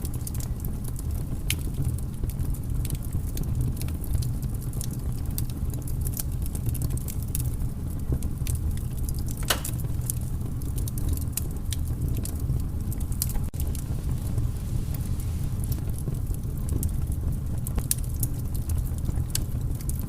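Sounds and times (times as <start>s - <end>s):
wood fire crackling: 0.0s - 20.0s
loud fire pop: 9.4s - 10.1s.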